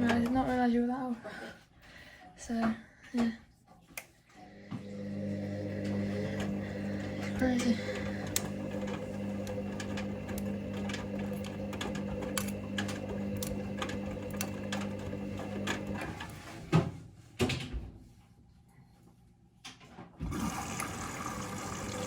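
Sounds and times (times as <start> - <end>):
washing machine motor humming: 0.0 - 0.7, 4.4 - 17.6, 20.2 - 22.0.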